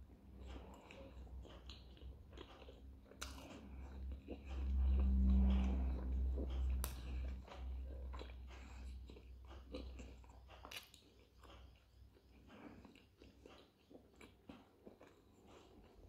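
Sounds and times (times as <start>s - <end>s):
close-up chewing: 0.0s - 16.0s
low rumble: 3.7s - 9.0s.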